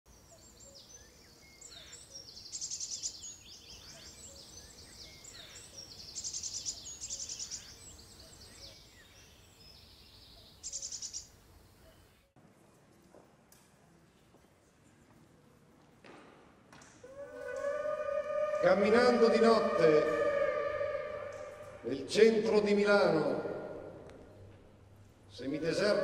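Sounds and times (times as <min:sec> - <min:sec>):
birds chirping and whistling: 0:00.3 - 0:12.0, 0:17.1 - 0:21.9
loud rapid bird trills: 0:10.6 - 0:11.3.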